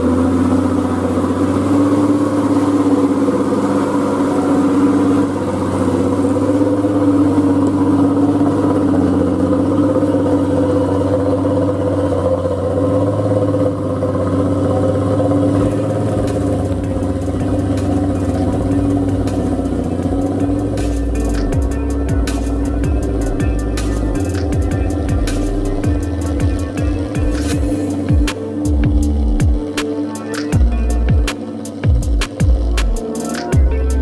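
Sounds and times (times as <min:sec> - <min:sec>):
diesel engine running: 0:00.0 - 0:34.0
low thumps: 0:15.9 - 0:33.0.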